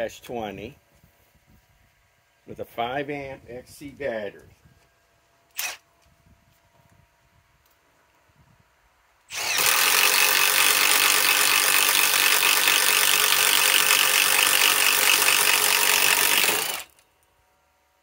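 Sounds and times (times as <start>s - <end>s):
impact wrench hammering: 9.4s - 16.9s.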